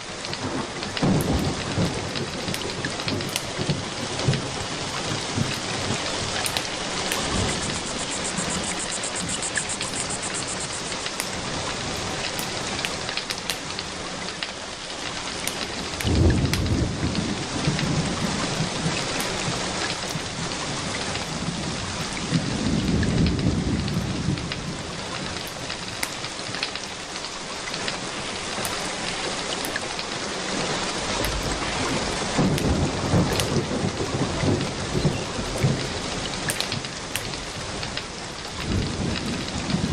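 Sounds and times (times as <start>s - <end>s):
heavy rain: 0.0s - 39.9s
sharp crackles: 0.2s - 20.4s, 24.4s - 33.8s, 34.6s - 39.8s
distant thunder rumbling: 0.4s - 13.0s, 15.5s - 26.9s, 28.0s - 39.9s.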